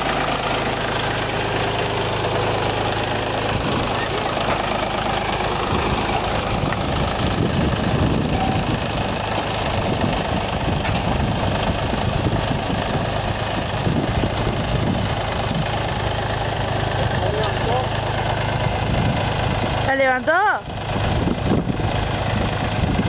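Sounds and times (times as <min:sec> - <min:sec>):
tractor diesel engine rumbling: 0:00.0 - 0:23.0.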